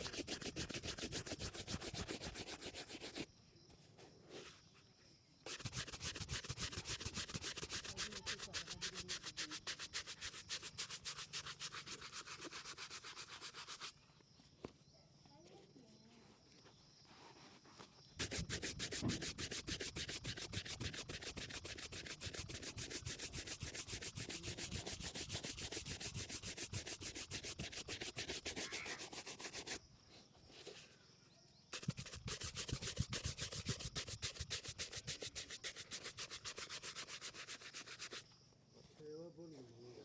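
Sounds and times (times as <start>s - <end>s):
shoe being buffed: 0.0s - 3.3s, 5.5s - 13.9s, 18.2s - 29.8s, 31.7s - 38.2s.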